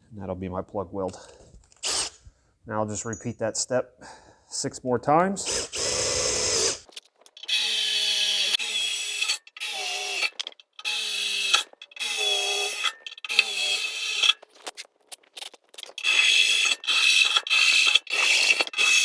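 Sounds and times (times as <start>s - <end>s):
electric drill boring through steel: 5.5s - 14.4s, 16.0s - 19.0s.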